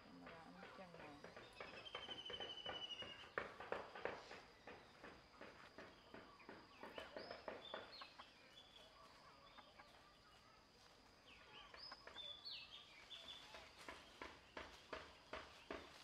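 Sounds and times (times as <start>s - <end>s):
faint bird chirps: 1.4s - 3.6s, 5.8s - 14.5s.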